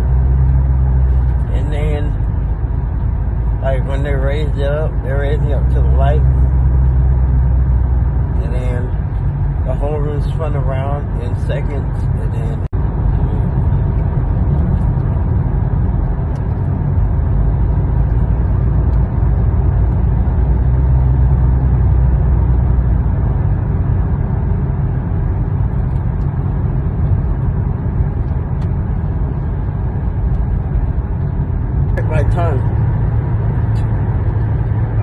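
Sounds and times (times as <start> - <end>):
low rumble of moving vehicle: 0.0 - 35.0.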